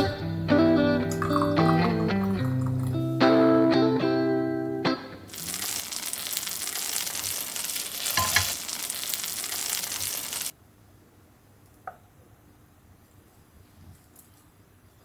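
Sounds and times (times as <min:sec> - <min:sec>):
food sizzling in a frying pan: 0:05.3 - 0:10.6.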